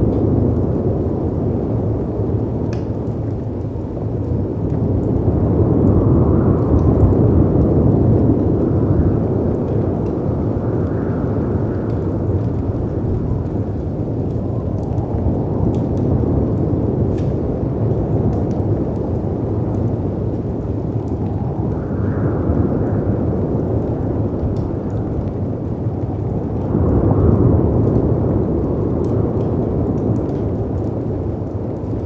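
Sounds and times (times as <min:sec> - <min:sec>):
wind and surf rumble: 0:00.0 - 0:32.0
wood fire crackling: 0:00.0 - 0:32.0.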